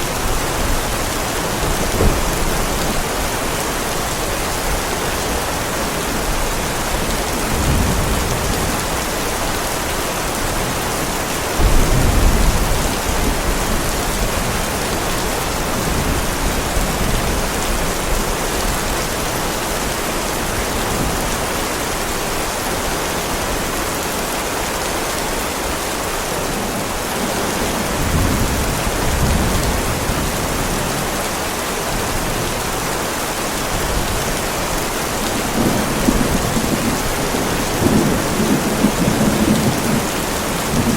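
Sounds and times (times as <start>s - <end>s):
heavy rain on pavement: 0.0s - 40.9s
thunder rumbling: 0.1s - 3.6s, 11.6s - 17.9s, 27.4s - 31.1s, 33.8s - 40.9s.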